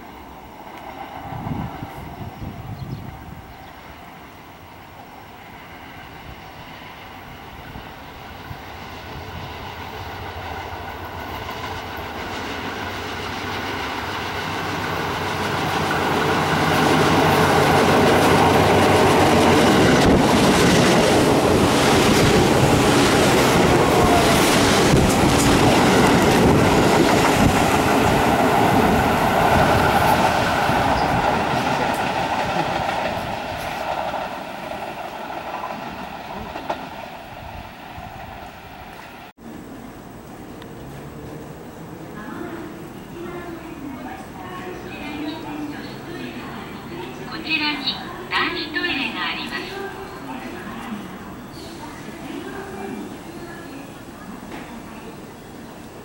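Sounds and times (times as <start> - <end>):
electric train passing: 0.0 - 56.0
wheels clacking over rail joints: 10.9 - 39.3.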